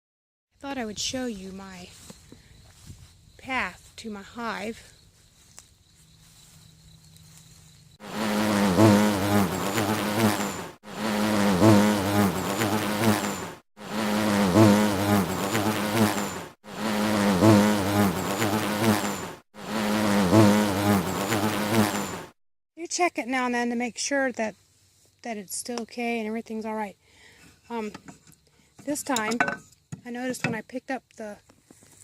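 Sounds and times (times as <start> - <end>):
loud insect buzzing: 7.9 - 22.4.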